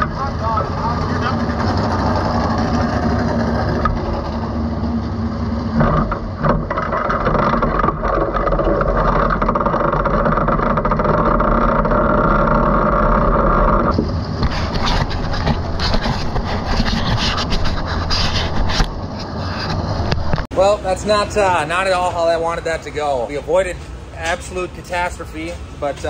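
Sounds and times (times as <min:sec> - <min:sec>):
race car engine running: 0:00.0 - 0:18.2.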